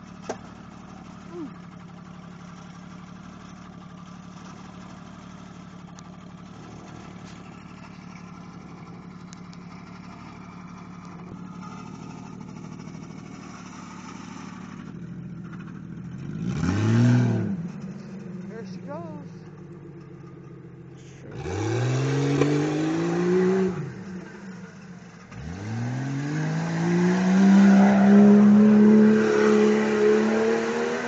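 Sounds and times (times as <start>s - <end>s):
engine idling: 0.0s - 16.7s, 17.5s - 21.7s, 23.7s - 25.5s.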